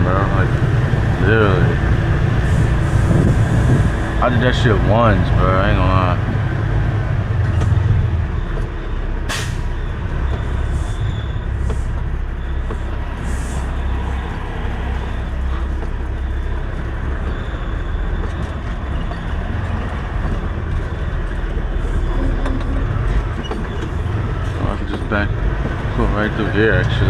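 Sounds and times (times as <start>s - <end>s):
truck diesel engine at low revs: 0.0s - 27.0s
air brake hiss: 9.3s - 9.8s, 13.2s - 13.7s.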